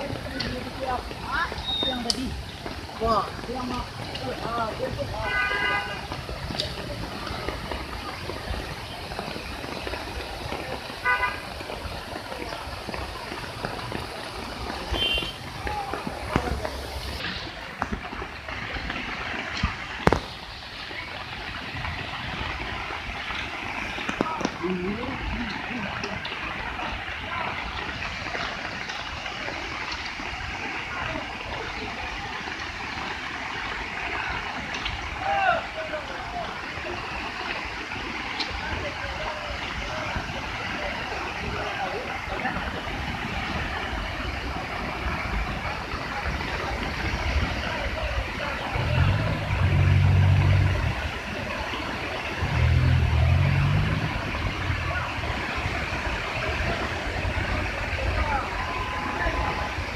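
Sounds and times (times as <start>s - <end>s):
rushing floodwater: 0.0s - 59.9s
vehicle horn toot: 5.2s - 6.1s, 11.0s - 11.4s, 14.9s - 15.4s
idling traffic: 35.8s - 59.9s.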